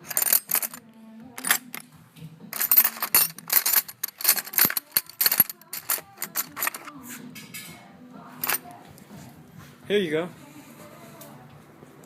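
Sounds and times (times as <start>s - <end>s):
wrench clicking on bolt: 2.6s - 6.9s.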